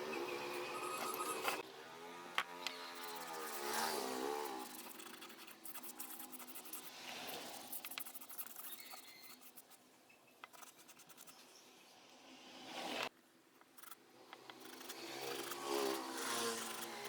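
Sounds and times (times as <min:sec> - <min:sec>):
faint scratching and scraping: 0:02.4 - 0:11.9, 0:13.7 - 0:17.0.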